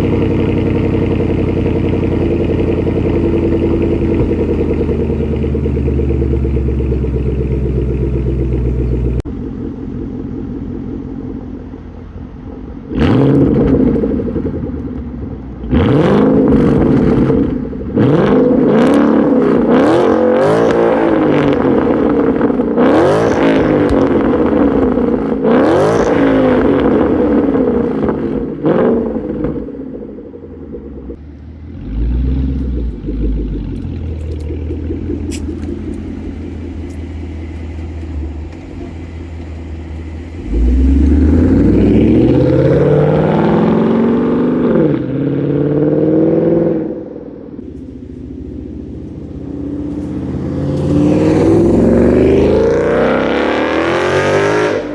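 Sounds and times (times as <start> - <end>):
car engine idling: 0.0 - 44.8, 46.9 - 53.4
car engine revving: 0.0 - 54.9.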